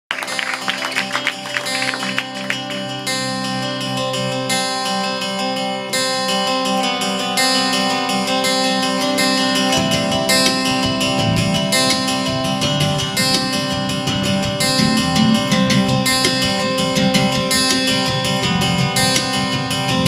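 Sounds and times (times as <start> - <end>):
acoustic guitar strumming: 0.2 - 20.0
deep bass notes: 14.2 - 17.3.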